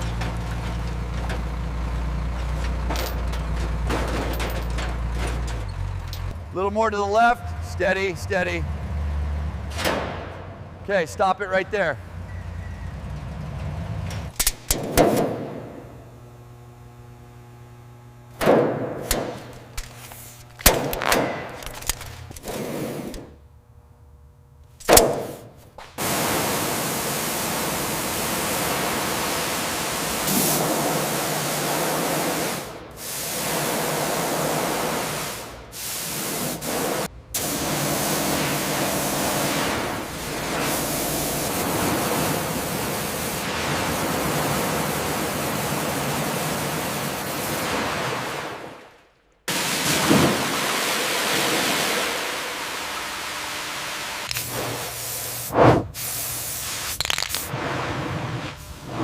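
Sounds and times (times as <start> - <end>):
metal knocks and clanks: 2.3 - 6.4.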